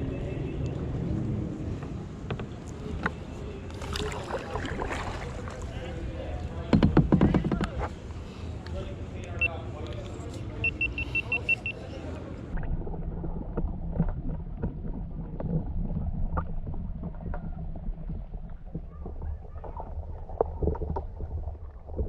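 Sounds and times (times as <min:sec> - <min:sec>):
muffled underwater rumble: 0:12.3 - 0:22.0.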